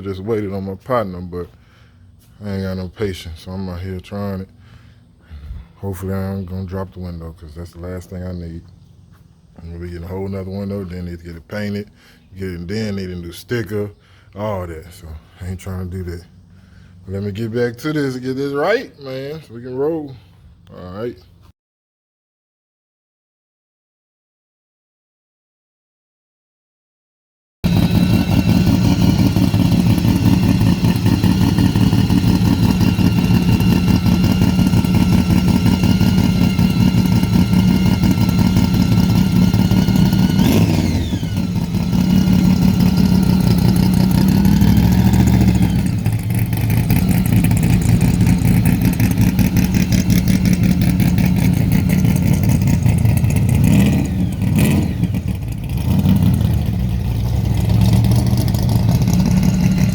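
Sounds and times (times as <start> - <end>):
car engine running: 27.6 - 59.9.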